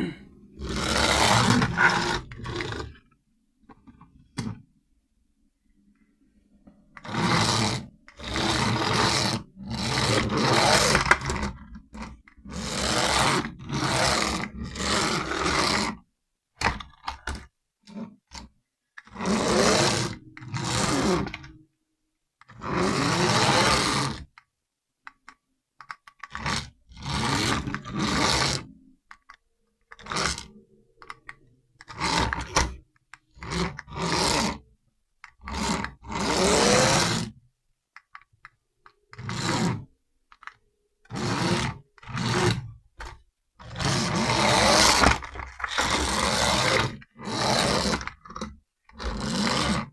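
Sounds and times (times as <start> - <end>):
toy car electric motor whirring: 0.6 - 2.9, 7.0 - 16.0, 19.0 - 21.6, 22.4 - 24.4, 25.8 - 34.6, 35.3 - 37.4, 39.1 - 49.9.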